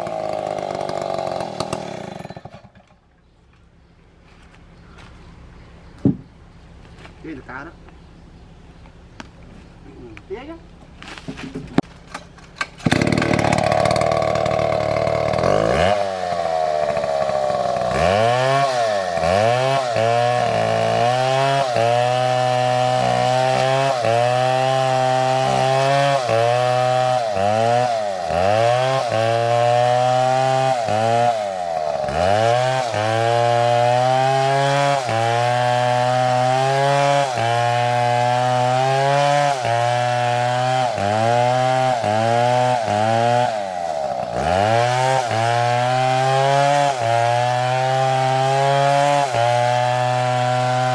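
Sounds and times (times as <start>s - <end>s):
chainsaw cutting wood: 0.0s - 3.0s, 11.1s - 50.9s.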